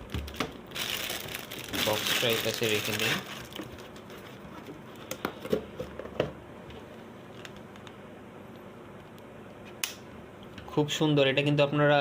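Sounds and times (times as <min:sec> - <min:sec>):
hands handling packaging: 0:00.1 - 0:05.6.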